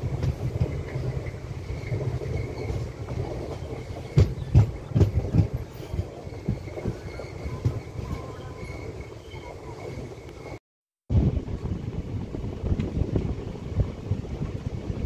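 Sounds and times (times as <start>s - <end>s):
train wheels rumbling on track: 0.0s - 10.6s.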